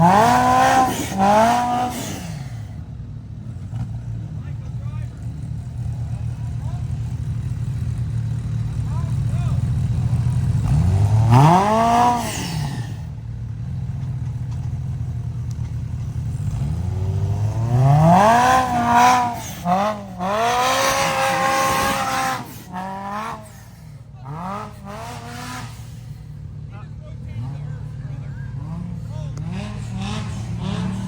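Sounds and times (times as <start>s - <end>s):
engine idling and revving: 0.0s - 31.0s.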